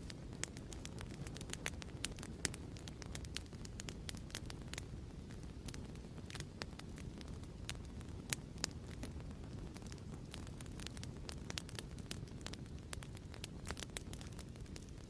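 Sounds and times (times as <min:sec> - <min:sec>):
fire pops and snaps: 0:00.0 - 0:15.0
wood fire crackling: 0:00.0 - 0:15.0.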